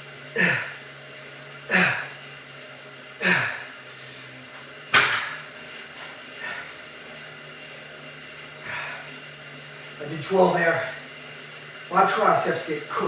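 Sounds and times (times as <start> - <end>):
steady low hum: 0.0 - 13.0
man exhaling forcefully: 0.4 - 0.8, 1.7 - 2.2, 3.2 - 3.8.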